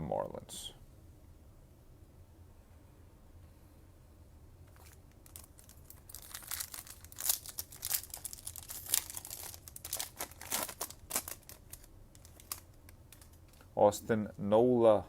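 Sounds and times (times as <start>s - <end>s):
foil wrapper tearing and crinkling: 4.7s - 13.6s.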